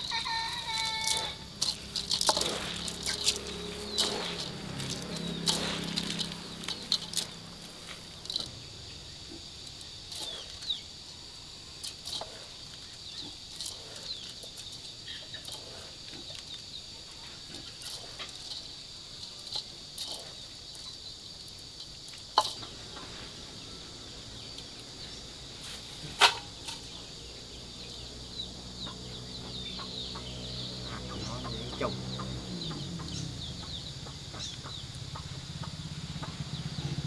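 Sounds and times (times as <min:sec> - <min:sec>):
chickens flapping: 0:00.0 - 0:08.5
high-pitched insect drone: 0:00.0 - 0:09.7
clicks and rustles: 0:00.4 - 0:08.6, 0:11.8 - 0:16.7, 0:17.5 - 0:23.1, 0:25.6 - 0:27.0.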